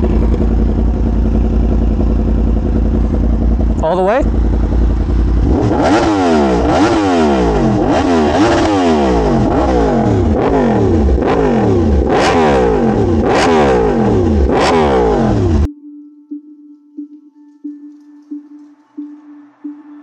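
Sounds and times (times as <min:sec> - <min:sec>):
motorcycle engine revving: 0:00.0 - 0:15.7
faint music tones: 0:15.7 - 0:20.0.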